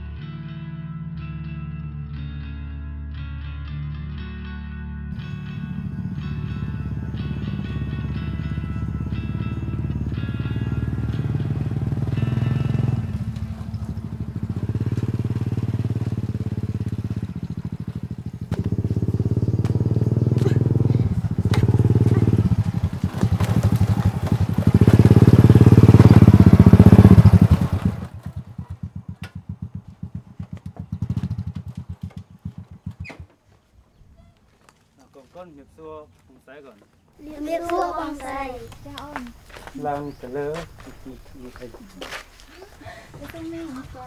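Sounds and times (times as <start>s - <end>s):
motorcycle engine running: 5.2s - 33.4s.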